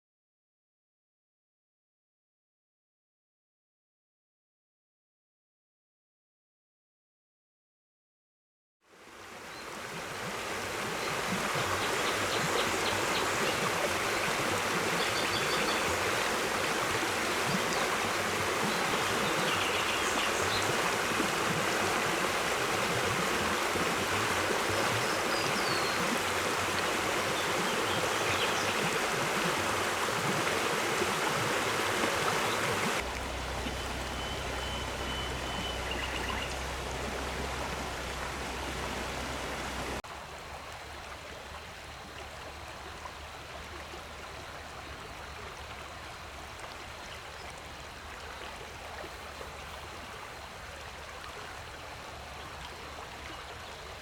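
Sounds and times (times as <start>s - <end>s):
running water stream: 8.9s - 54.0s
low steady hum: 33.0s - 40.0s.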